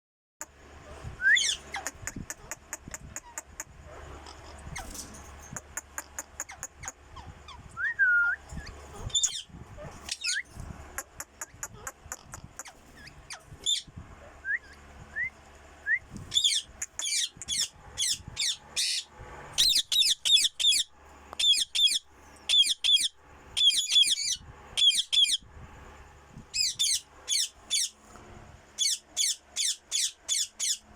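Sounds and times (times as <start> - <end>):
parakeet whistles and chirps: 1.2 - 1.9, 6.5 - 10.5, 12.6 - 25.5, 26.5 - 28.0, 28.8 - 30.8.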